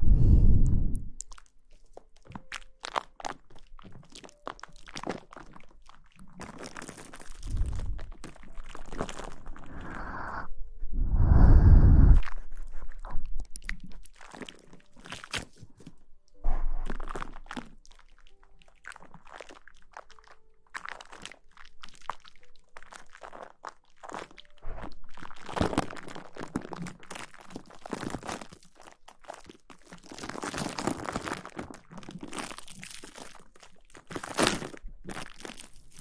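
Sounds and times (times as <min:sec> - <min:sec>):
close rustling and crunchy scratching: 0:22.8 - 0:36.0.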